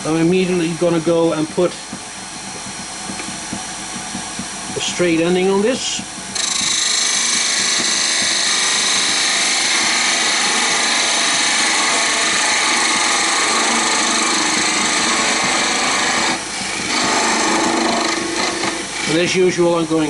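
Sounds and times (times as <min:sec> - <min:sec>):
lathe tool cutting wood hissing: 0:04.8 - 0:20.0.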